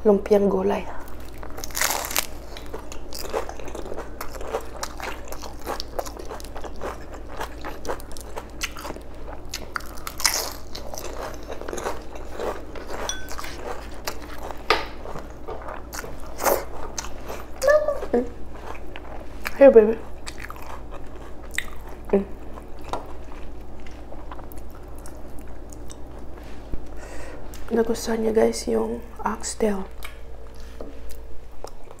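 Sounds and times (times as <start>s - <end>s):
crunching and chewing spring roll: 1.1s - 26.6s.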